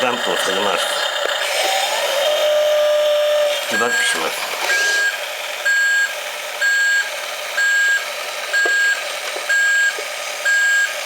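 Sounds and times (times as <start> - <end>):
reversing alarm beeps: 3.7 - 8.0, 8.6 - 11.0.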